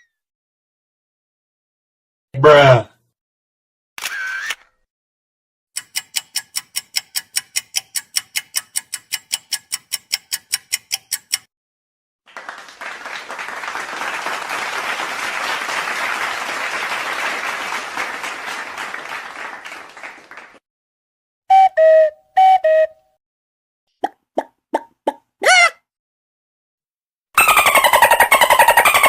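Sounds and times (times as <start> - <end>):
fast ringing ticks: 5.8 - 11.5
crowd applauding: 12.3 - 20.6.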